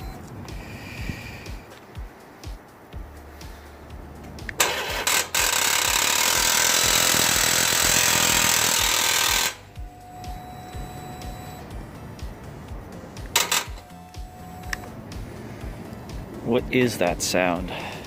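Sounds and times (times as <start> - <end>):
faint background music with beat: 0.0 - 18.0
loud harsh engine noise: 4.6 - 11.8.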